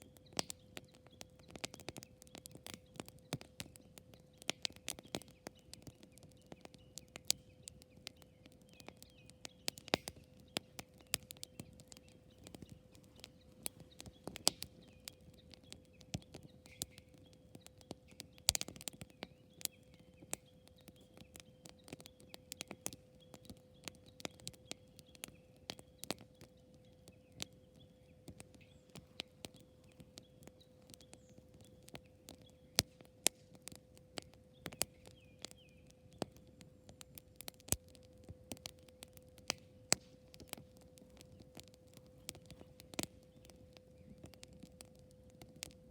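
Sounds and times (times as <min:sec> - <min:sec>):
campfire crackling and popping: 0:00.0 - 0:45.9.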